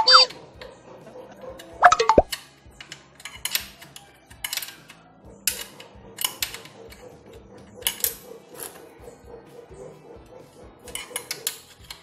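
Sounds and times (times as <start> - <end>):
socket wrench clicking: 1.6 - 7.1, 10.9 - 12.0.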